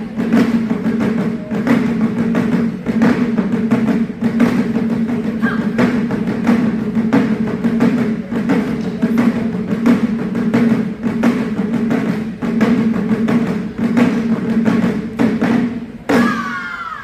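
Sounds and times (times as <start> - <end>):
taiko drums playing: 0.0 - 17.0
person shouting: 16.1 - 17.0.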